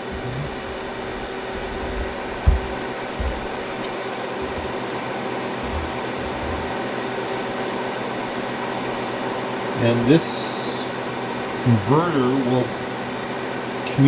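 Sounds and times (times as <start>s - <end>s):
low bumps: 0.0s - 7.2s
fan whir: 0.0s - 10.2s.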